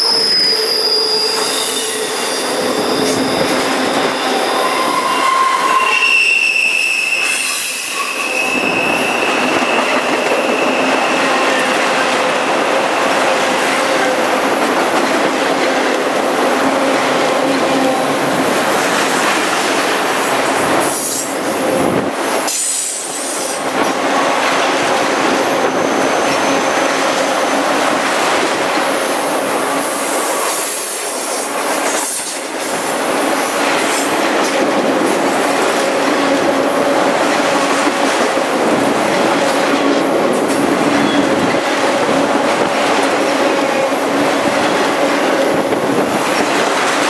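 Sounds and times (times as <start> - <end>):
wheel flanges squealing: 0.0 - 11.7
freight train wheels on rail: 0.0 - 47.0.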